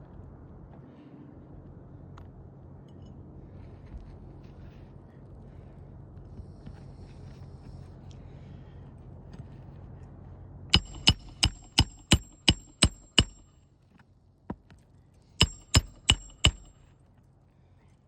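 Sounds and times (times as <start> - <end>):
hammer striking roofing nails: 10.8 - 13.5, 15.4 - 16.8.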